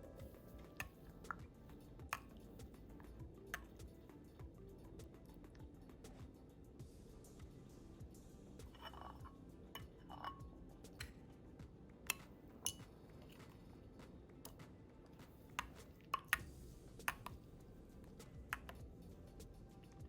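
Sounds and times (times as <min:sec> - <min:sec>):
utensils clinking against dishes: 0:08.7 - 0:11.2, 0:12.1 - 0:13.6.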